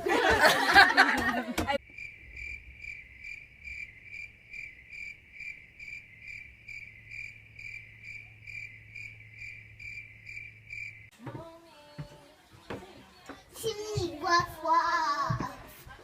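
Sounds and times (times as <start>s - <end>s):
cricket chirping: 1.8s - 11.1s.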